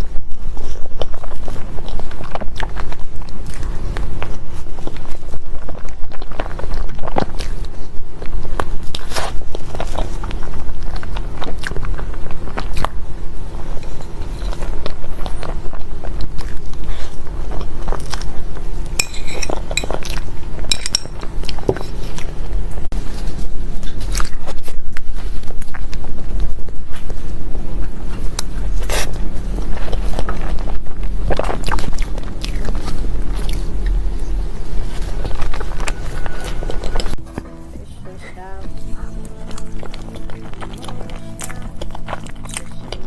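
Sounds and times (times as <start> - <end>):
chewing with wet mouth clicks: 0.0 - 22.7, 23.8 - 37.2, 39.1 - 43.0
utensils clinking on plate: 19.0 - 20.0, 20.6 - 22.1.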